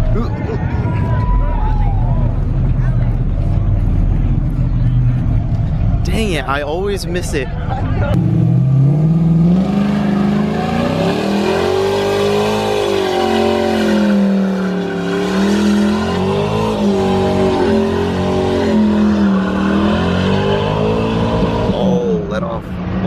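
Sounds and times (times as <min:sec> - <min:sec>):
car engine revving: 0:08.1 - 0:23.0.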